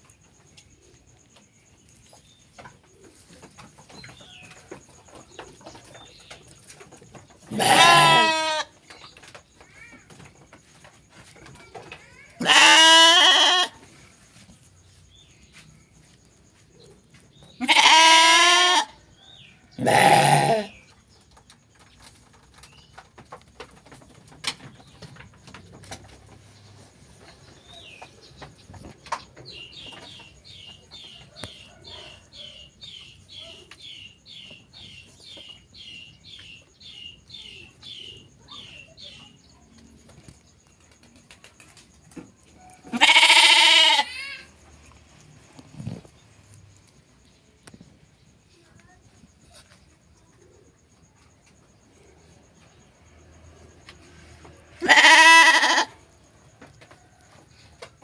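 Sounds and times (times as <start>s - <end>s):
sheep bleating: 7.5s - 8.7s, 12.4s - 13.8s, 17.6s - 18.9s, 19.8s - 20.7s, 42.9s - 44.2s, 54.8s - 55.9s.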